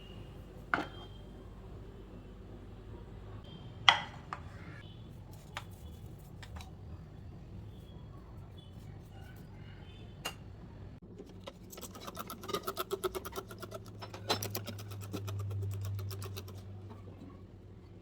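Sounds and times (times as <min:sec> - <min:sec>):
low steady background hum: 0:00.0 - 0:18.0
kitchen utensils knocking and clinking: 0:11.8 - 0:15.3.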